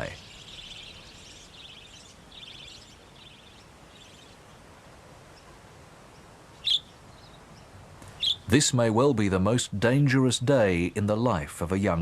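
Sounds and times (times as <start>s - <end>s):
budgerigars chirping: 0.0s - 4.4s, 6.6s - 8.5s.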